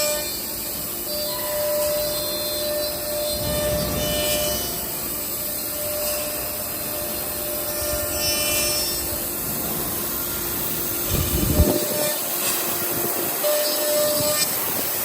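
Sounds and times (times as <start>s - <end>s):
spindle whine: 2.4s - 7.9s
short low rumble: 3.0s - 6.2s.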